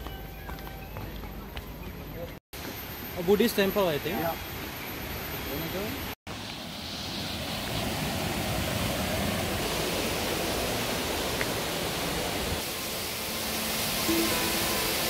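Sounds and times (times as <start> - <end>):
faint music: 0.0 - 2.4
falling water rushing: 6.3 - 15.0.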